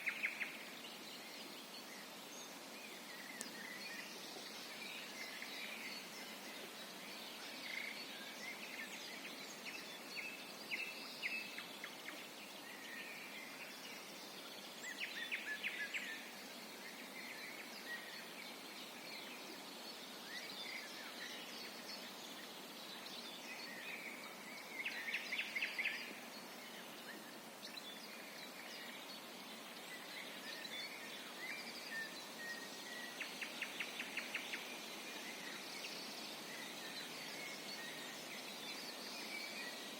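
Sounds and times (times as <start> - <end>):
songbirds chirping: 0.0 - 39.9
steady background hiss: 0.0 - 39.9.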